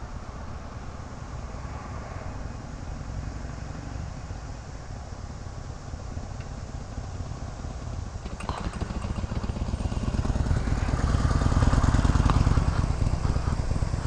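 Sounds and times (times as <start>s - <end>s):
motorcycle engine running: 7.0s - 14.0s.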